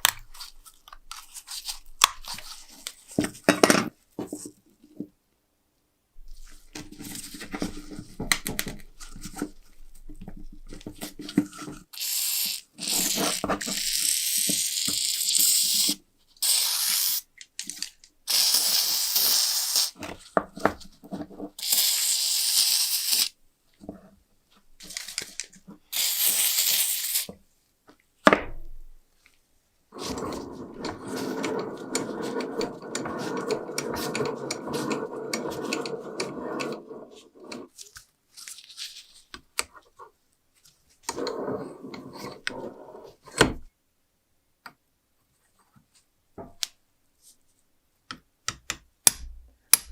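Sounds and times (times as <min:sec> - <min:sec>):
hissing scraping strokes: 0:30.0 - 0:37.7.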